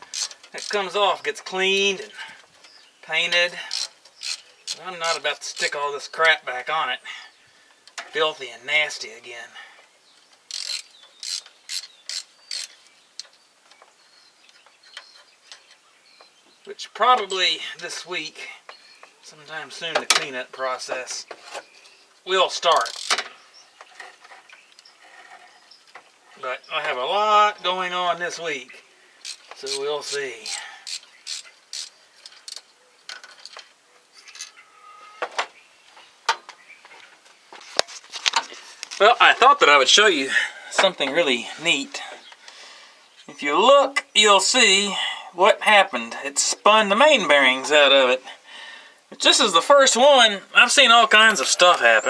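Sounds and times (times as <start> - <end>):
ratchet wrench ratcheting: 0.1 - 0.8, 3.7 - 5.8, 10.5 - 12.8, 22.8 - 23.2, 29.2 - 32.6
metal tools clinking: 29.2 - 35.0.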